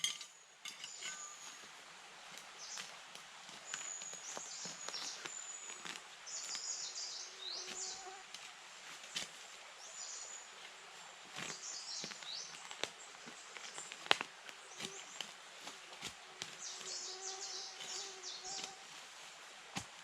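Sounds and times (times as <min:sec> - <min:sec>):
small birds chirping: 0:02.5 - 0:08.2, 0:11.3 - 0:18.9.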